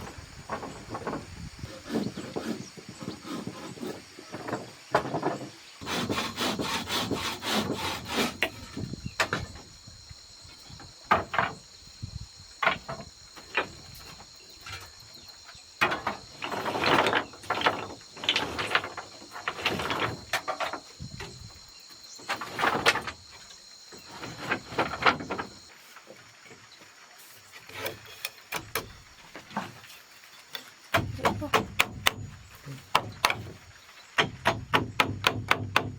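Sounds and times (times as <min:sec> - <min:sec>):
hand tool scraping wood: 0:00.5 - 0:09.6, 0:15.8 - 0:21.6, 0:22.2 - 0:26.6, 0:27.2 - 0:35.9.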